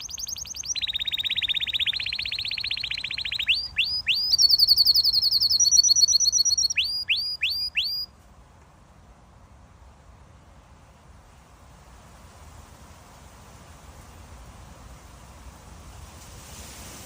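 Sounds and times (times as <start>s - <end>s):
canary singing trills: 0.0s - 8.1s.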